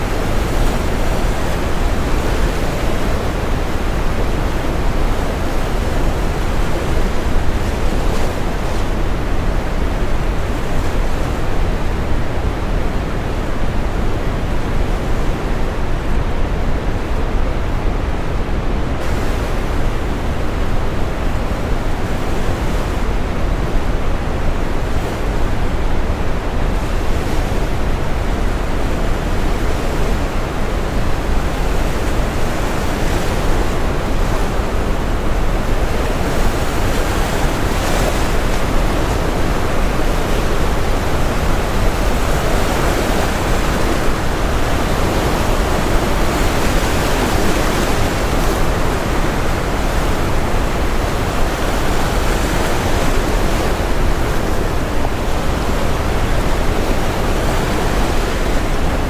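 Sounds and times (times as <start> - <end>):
ocean waves breaking: 24.9 - 59.0.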